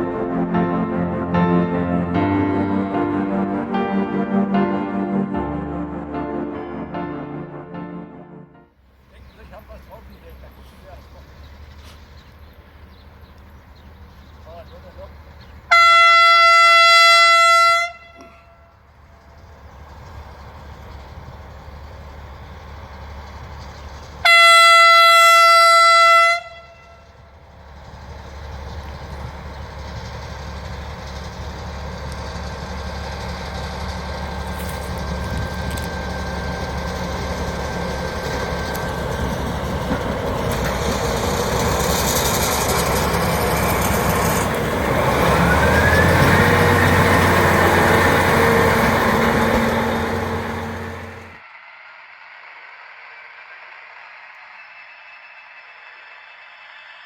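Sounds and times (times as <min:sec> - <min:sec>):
locomotive engine running: 0:00.0 - 0:57.0
locomotive horn blast: 0:15.7 - 0:18.9, 0:24.2 - 0:27.3, 0:44.4 - 0:51.4
rising whine: 0:34.1 - 0:57.0.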